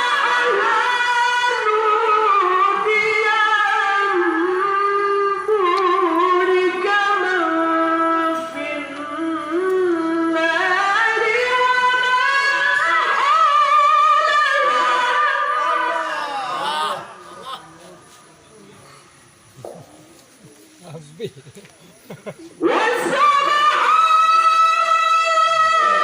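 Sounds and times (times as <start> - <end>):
man reciting melismatic chant: 14.0 - 18.1.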